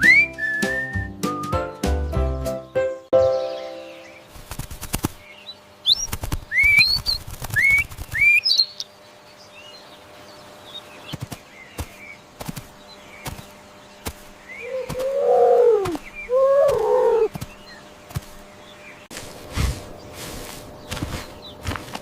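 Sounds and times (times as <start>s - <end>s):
rising whistled bird notes: 0.0s - 1.8s
faint bird chirps: 12.9s - 19.1s
harsh animal call: 14.6s - 17.3s.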